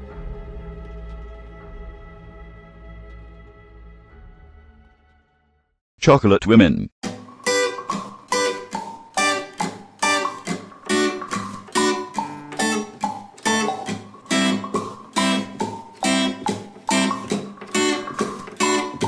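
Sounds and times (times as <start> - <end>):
acoustic guitar strumming: 7.0 - 19.0.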